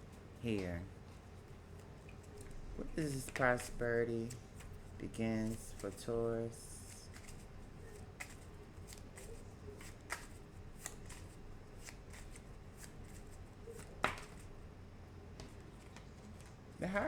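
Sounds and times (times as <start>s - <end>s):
cards being shuffled: 1.8s - 14.5s
card flicks and taps: 8.2s - 11.2s, 13.8s - 14.4s.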